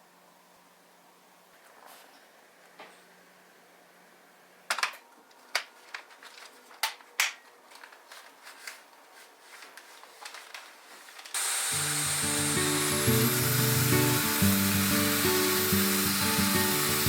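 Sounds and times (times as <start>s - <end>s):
plastic parts clicking and knocking: 4.7s - 8.0s
vacuum hiss: 11.4s - 17.0s
background music: 11.8s - 17.0s.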